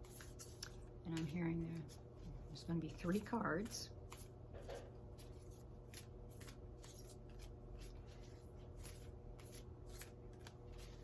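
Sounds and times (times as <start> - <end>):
low steady hum: 0.0 - 11.0
cards being shuffled: 3.0 - 11.0.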